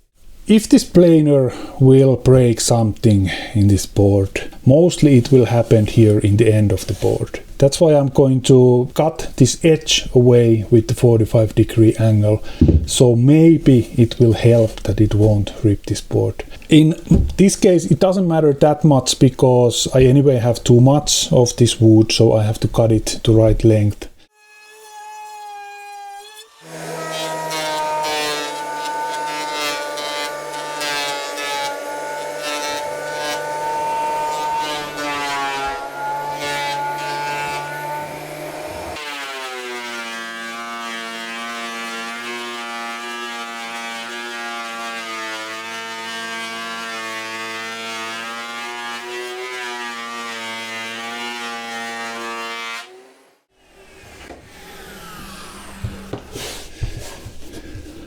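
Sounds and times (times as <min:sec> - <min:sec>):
knocks and handling: 0:12.4 - 0:13.1, 0:16.9 - 0:17.6, 0:55.8 - 0:58.0
thickness planer whining: 0:12.6 - 0:13.1, 0:24.5 - 0:58.0.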